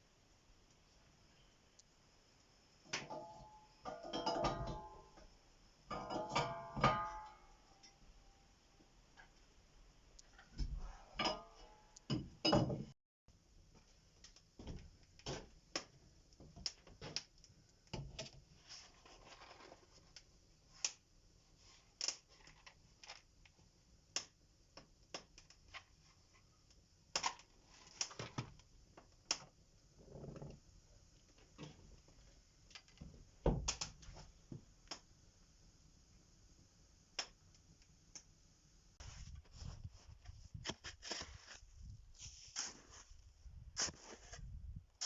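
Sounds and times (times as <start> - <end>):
soft rustling: 39.0 - 44.5.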